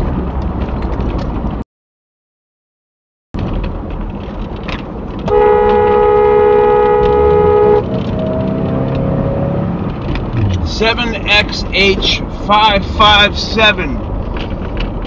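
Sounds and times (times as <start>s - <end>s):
road and engine rumble: 0.0s - 1.6s, 3.4s - 15.0s
car horn blast: 5.3s - 7.9s.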